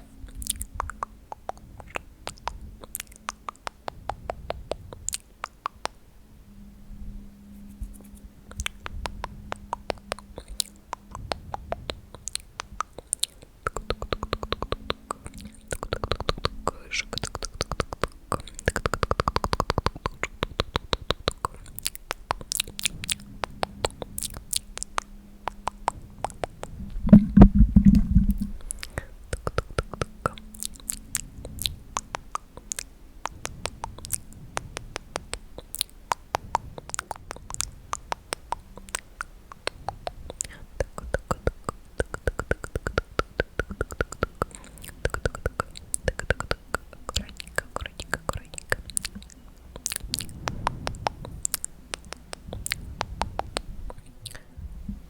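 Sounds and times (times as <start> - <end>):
tongue clicks: 0.0 - 6.1, 7.3 - 55.0
wet mouth clicks: 0.0 - 6.1, 7.5 - 55.0
low rumble: 14.6 - 42.0.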